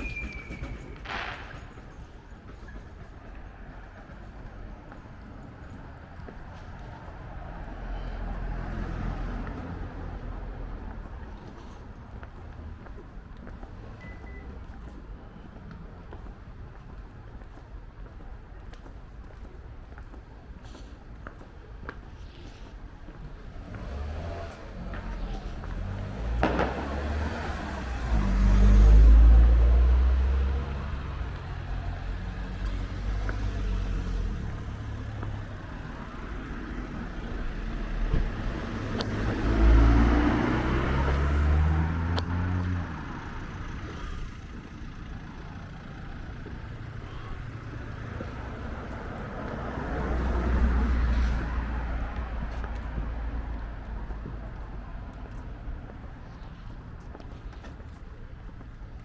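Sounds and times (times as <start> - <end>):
cars driving past: 0.0 - 18.2, 21.3 - 59.0
car accelerating: 23.6 - 54.7.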